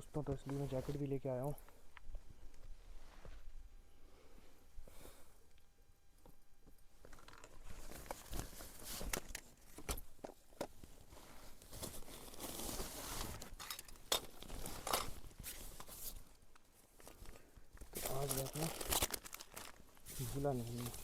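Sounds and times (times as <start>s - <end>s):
close rustling and crinkling: 0.0s - 3.8s, 6.6s - 21.0s
sharp clicks and crunches: 16.5s - 19.9s.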